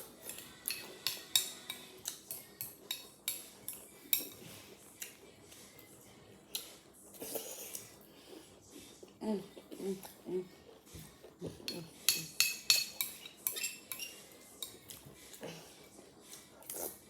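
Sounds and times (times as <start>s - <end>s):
spoon clinking against bowl: 0.3s - 4.4s, 11.7s - 14.8s.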